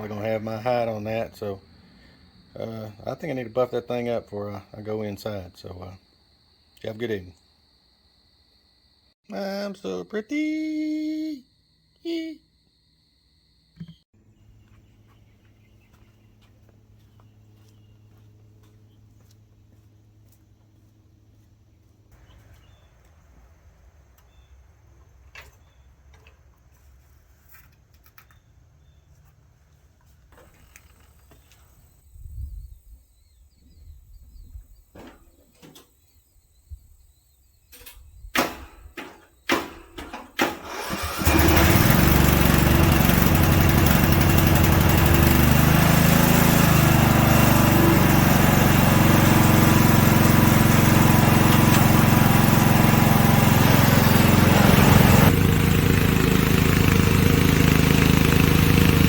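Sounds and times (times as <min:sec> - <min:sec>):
riding mower engine: 0:39.7 - 0:59.0.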